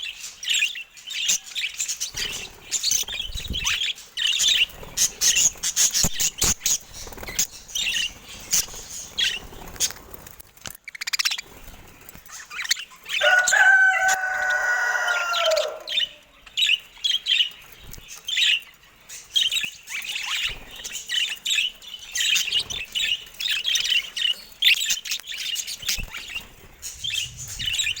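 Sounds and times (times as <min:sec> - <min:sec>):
budgerigars chirping and chattering: 0:00.0 - 0:28.0
low sliding bird call: 0:26.8 - 0:28.0.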